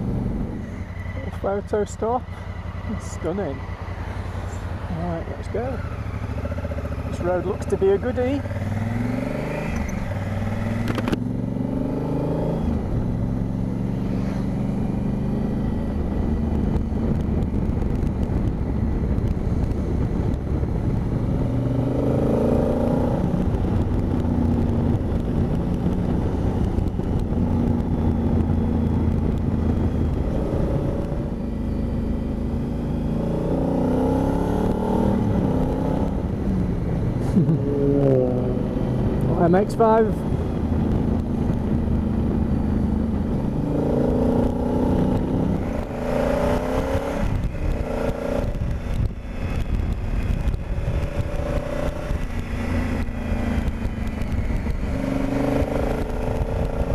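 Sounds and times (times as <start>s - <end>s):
motorcycle engine accelerating: 0.0s - 56.9s
wind rush: 11.9s - 31.5s, 32.1s - 56.9s.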